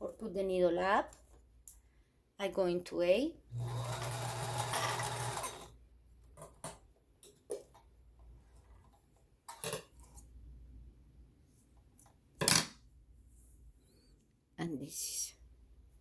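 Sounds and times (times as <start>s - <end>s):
sewing machine running: 3.5s - 5.7s.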